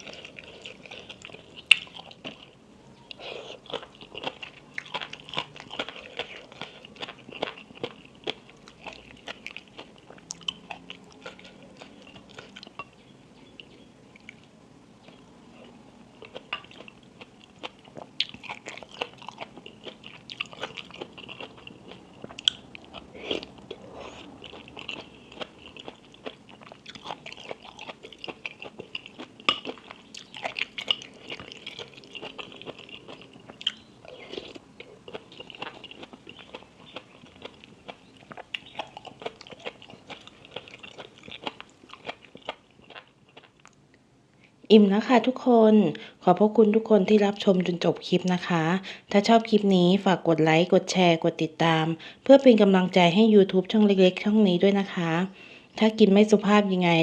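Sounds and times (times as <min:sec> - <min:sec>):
chewing crunchy food: 0:00.0 - 0:43.9.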